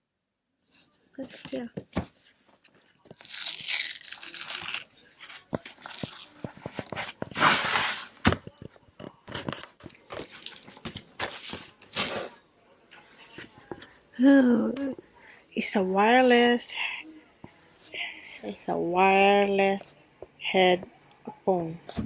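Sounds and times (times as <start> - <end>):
packaging rustling and crinkling: 3.0 - 7.8.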